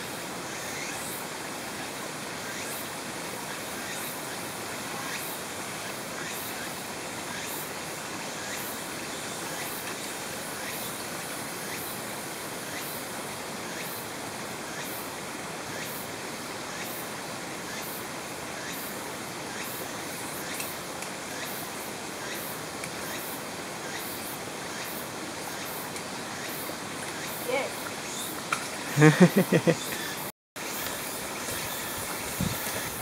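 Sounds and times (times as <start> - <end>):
stream water rushing over rocks: 24.4 - 33.0.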